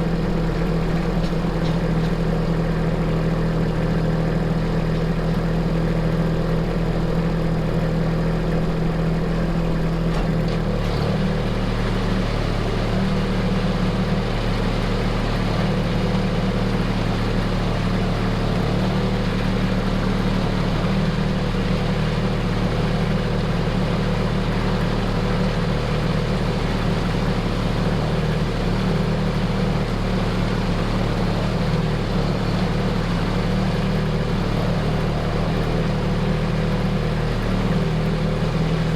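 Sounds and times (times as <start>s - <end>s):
machine engine running: 10.8s - 38.9s.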